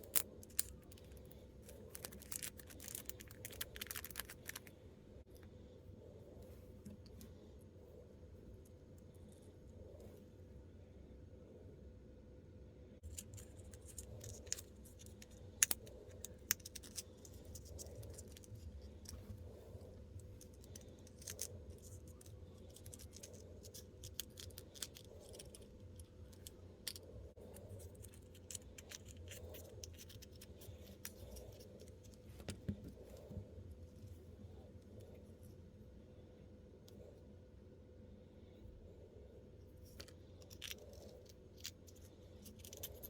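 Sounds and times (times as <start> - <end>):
faint steady hum: 0.0 - 43.0
plastic pieces clicking: 1.9 - 4.7.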